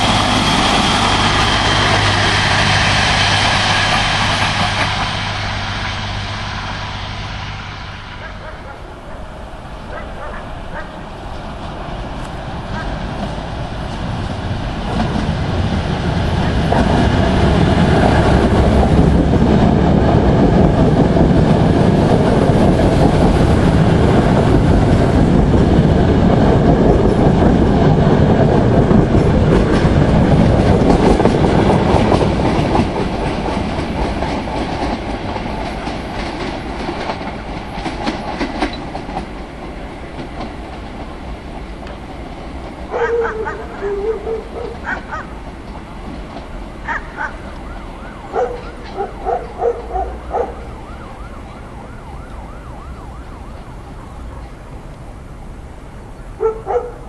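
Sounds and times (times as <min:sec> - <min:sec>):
train passing: 0:00.0 - 0:57.0
wheels clicking over rail joints: 0:29.1 - 0:50.5.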